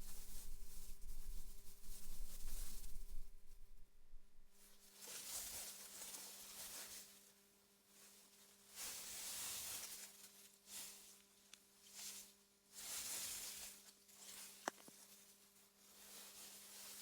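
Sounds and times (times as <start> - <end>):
wind through grass: 0.0 - 4.8.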